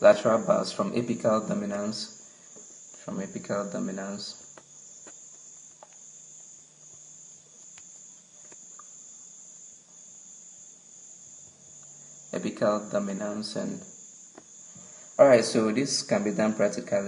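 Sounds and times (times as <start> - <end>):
person speaking: 0.0 - 2.2, 3.0 - 4.5, 12.4 - 13.9, 15.2 - 17.0
insect chirring: 0.0 - 17.0.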